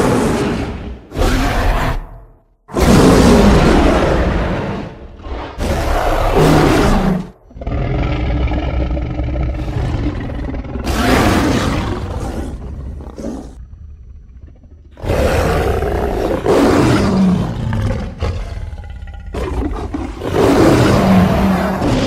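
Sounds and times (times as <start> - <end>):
creature roaring: 14.9 - 22.0.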